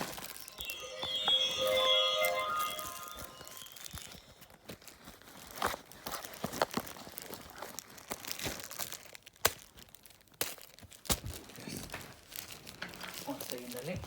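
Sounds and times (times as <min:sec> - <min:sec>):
crinkling and rustling: 0:10.1 - 0:14.0.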